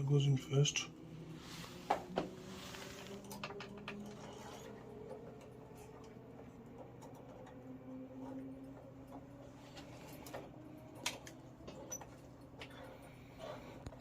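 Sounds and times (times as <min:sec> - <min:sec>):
soft rustle: 0:01.2 - 0:03.4.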